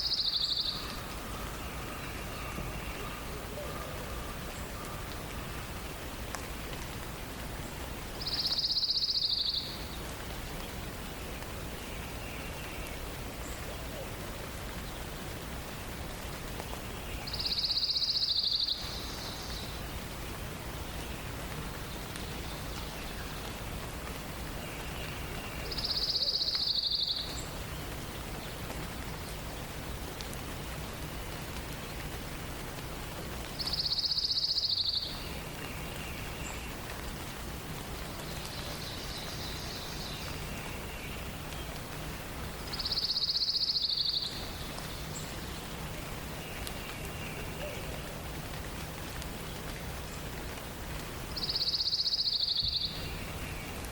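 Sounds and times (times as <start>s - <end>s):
songbird dense trill: 0.0s - 6.1s, 7.6s - 14.2s, 16.7s - 20.1s, 24.4s - 30.0s, 33.6s - 36.8s, 38.0s - 48.2s, 51.2s - 53.9s.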